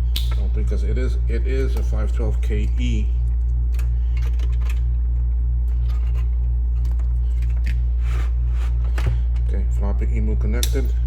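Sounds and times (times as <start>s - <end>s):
low electrical hum with buzz: 0.0s - 11.0s.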